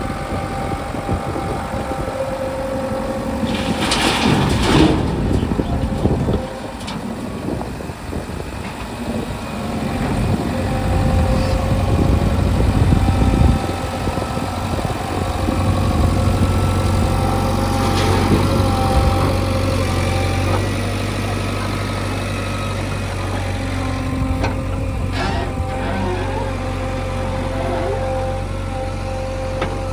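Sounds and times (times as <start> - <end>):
diesel engine running unevenly: 0.0 - 29.9.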